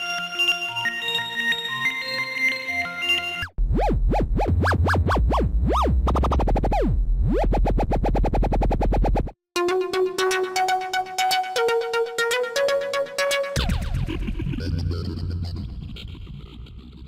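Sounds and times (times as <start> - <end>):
deep synth bass pitch sweeps: 3.5 - 9.2
synthesizer melody: 9.6 - 15.8.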